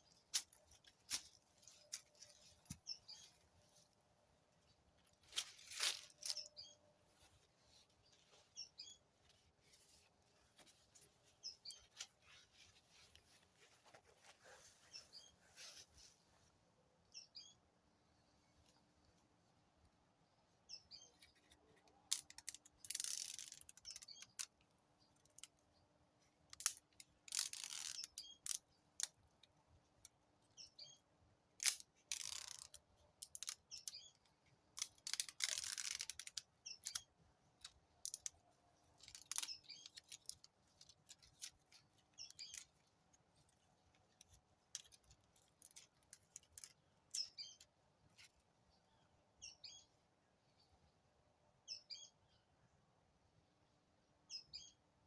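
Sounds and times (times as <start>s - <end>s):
faint bird chirps: 14.4s - 16.4s, 17.0s - 17.7s, 48.7s - 51.0s, 51.6s - 52.8s, 54.2s - 54.9s.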